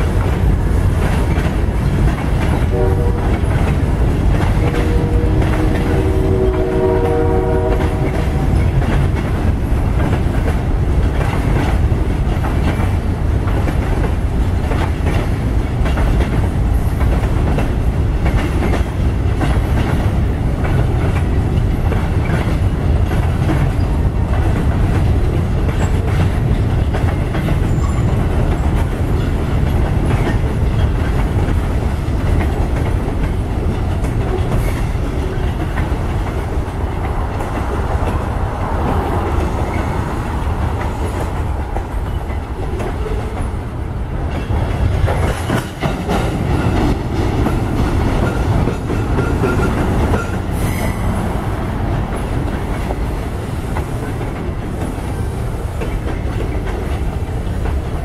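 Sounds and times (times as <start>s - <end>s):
freight train rumble: 0.0s - 58.0s
wheels clacking over rail joints: 0.0s - 58.0s.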